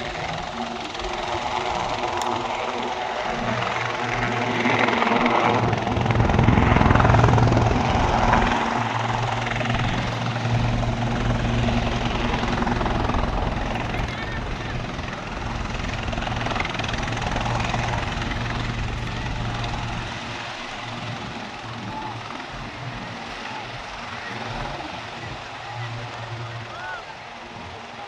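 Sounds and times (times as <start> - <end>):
helicopter rotors and turbine drone: 0.0 - 28.0.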